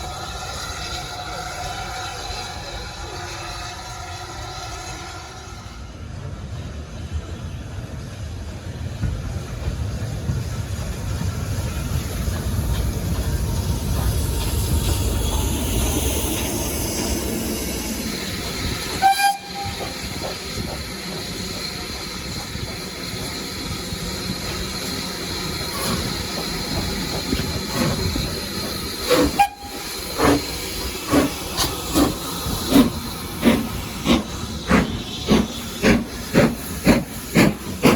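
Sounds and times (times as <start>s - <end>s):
train rumble: 0.0s - 37.9s
locomotive exhaust chuffs: 9.0s - 37.9s
steam whistle toot: 18.9s - 20.0s, 29.1s - 30.3s.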